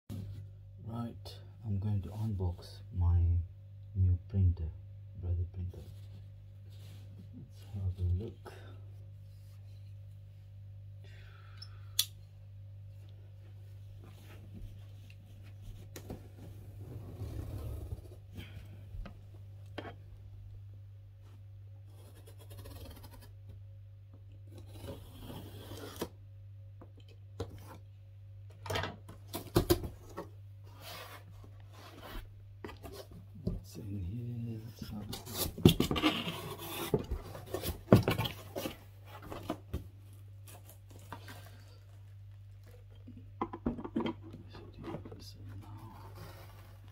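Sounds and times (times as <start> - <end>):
faint low hum: 0.1 - 46.9
cardboard scraping and rustling: 29.4 - 33.3, 34.8 - 39.8.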